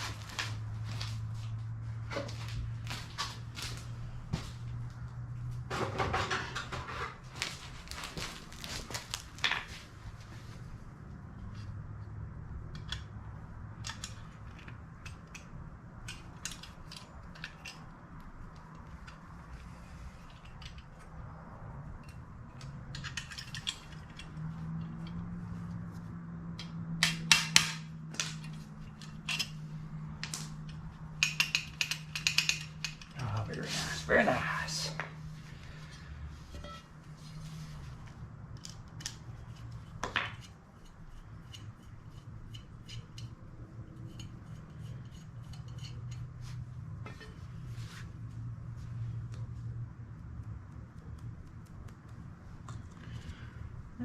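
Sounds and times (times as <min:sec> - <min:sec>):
rustling scrape: 0:00.0 - 0:04.6, 0:06.2 - 0:10.7, 0:35.4 - 0:38.2, 0:43.9 - 0:49.0
low steady hum: 0:00.0 - 0:54.0
small metal parts clicking: 0:12.7 - 0:19.3, 0:21.9 - 0:25.2, 0:26.6 - 0:33.2.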